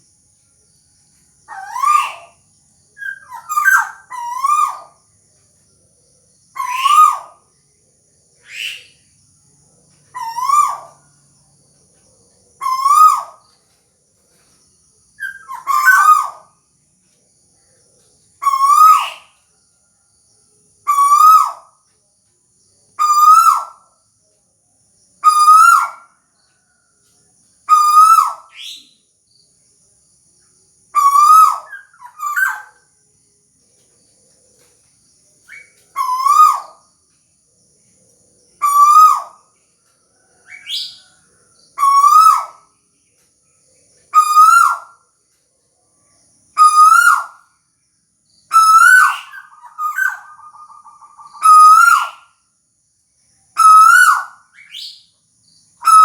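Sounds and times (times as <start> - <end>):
owl hooting: 1.5 - 2.4, 3.0 - 5.0, 6.6 - 7.4, 8.4 - 9.0, 10.1 - 11.0, 12.6 - 13.4, 15.2 - 16.6, 18.4 - 19.4, 20.8 - 21.8, 23.0 - 23.9, 25.2 - 26.1, 27.7 - 29.0, 31.0 - 32.8, 35.5 - 36.8, 38.6 - 39.5, 41.8 - 42.7, 44.1 - 45.0, 46.6 - 47.4, 48.5 - 52.4, 53.6 - 55.0, 55.8 - 56.0.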